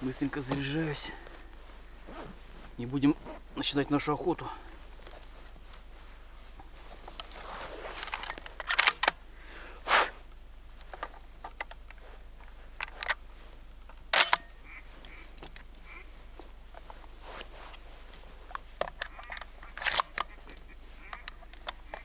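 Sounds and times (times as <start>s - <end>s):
shotgun shells clicking and clacking: 8.0s - 9.2s, 11.0s - 13.2s, 14.0s - 14.6s, 18.8s - 22.0s.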